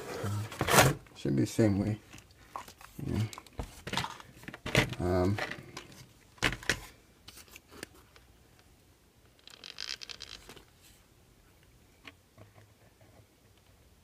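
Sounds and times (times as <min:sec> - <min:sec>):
small parts clicking and scraping: 0:09.3 - 0:10.7.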